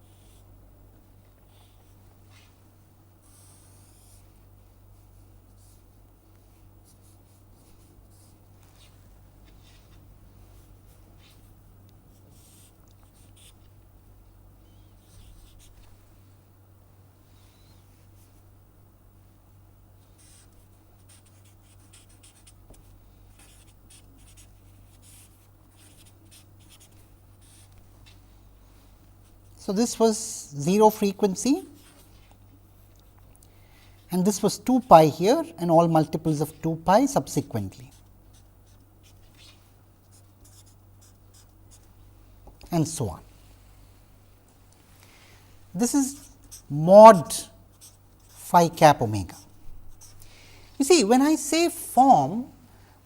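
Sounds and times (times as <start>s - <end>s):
steady low hum: 0.0s - 53.0s
pen scratching on paper: 3.2s - 4.2s, 12.2s - 13.6s, 20.2s - 27.8s, 37.9s - 41.9s, 46.0s - 48.5s.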